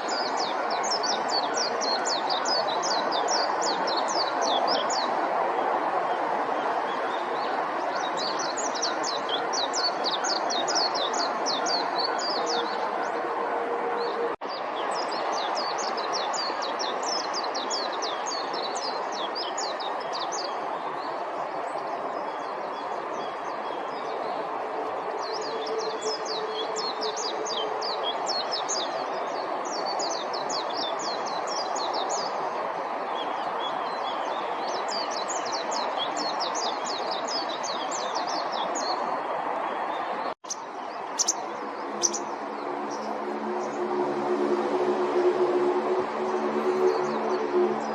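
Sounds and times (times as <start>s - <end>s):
bird singing high twittering notes: 40.5s - 42.3s.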